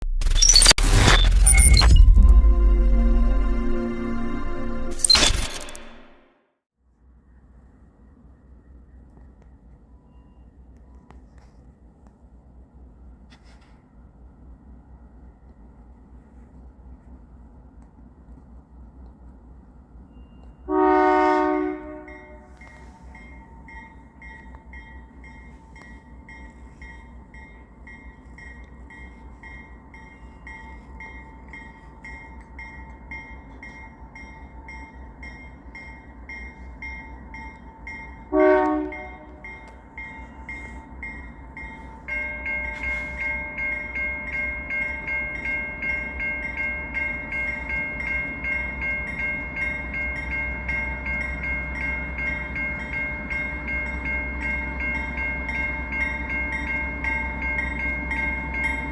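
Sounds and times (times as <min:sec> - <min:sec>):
train rumbling: 0:12.5 - 0:58.9
railroad crossing bells ringing: 0:20.1 - 0:58.9
locomotive horn blast: 0:20.7 - 0:22.6, 0:38.3 - 0:39.4.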